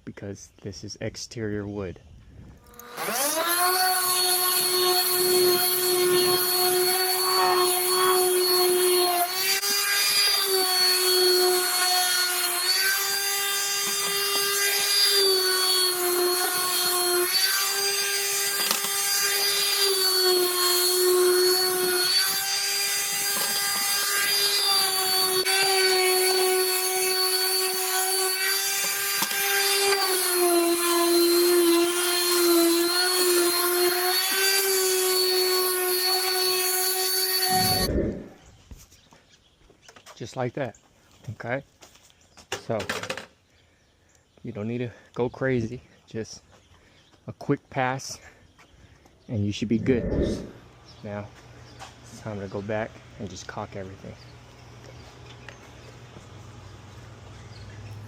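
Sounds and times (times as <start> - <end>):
electric sander whining on wood: 2.6 - 38.4, 49.8 - 50.6.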